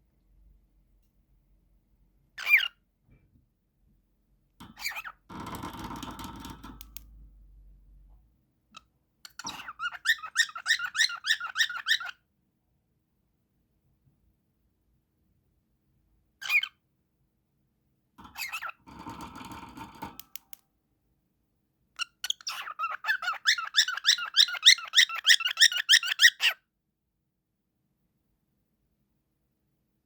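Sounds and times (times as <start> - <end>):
cockatiel chirping: 2.4 - 2.8, 4.8 - 5.1, 8.8 - 12.2, 16.4 - 16.8, 18.3 - 18.8, 22.0 - 26.6.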